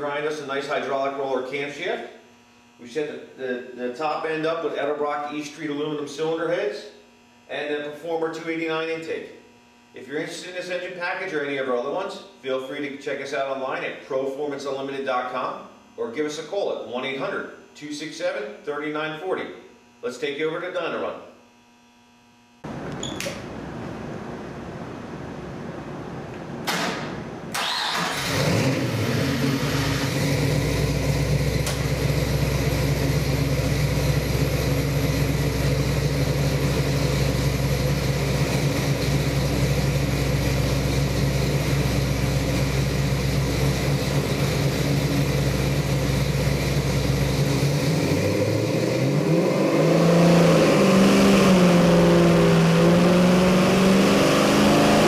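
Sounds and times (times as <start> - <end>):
engine starting and idling: 26.6 - 49.0
engine revving: 27.5 - 55.0.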